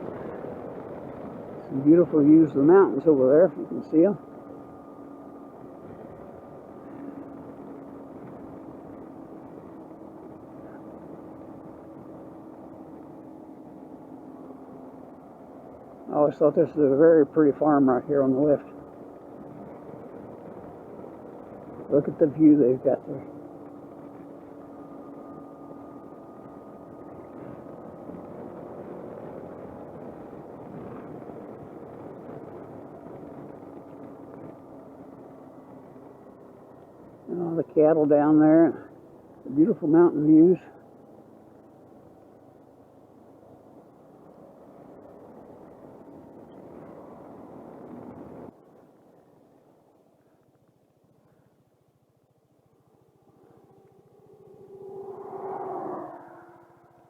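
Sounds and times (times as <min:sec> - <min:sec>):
wind noise: 0:00.0 - 0:40.8, 0:44.2 - 0:49.0
road noise: 0:00.0 - 0:57.0
scooter engine drone: 0:00.0 - 0:57.0.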